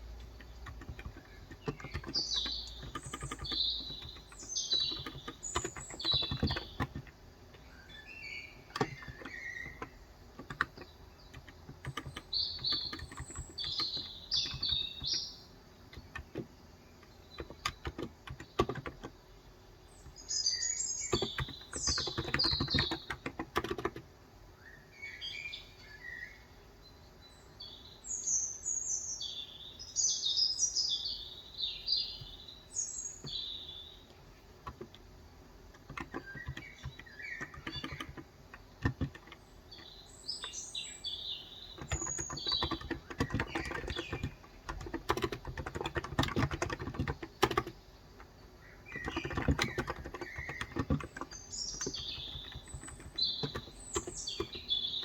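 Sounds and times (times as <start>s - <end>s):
birds chirping: 0.0s - 55.0s
keyboard typing: 0.1s - 19.2s, 21.0s - 24.1s, 34.1s - 40.8s, 41.6s - 55.0s.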